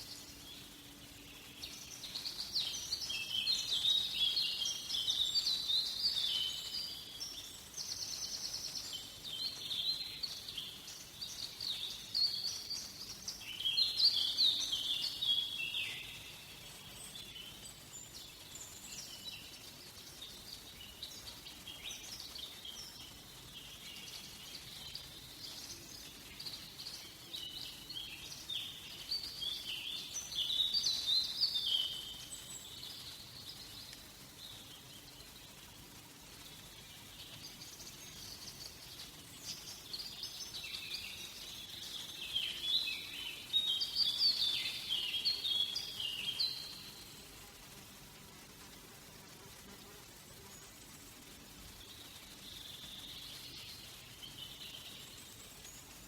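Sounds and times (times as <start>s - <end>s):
birds chirping and trilling: 36.4s - 47.4s.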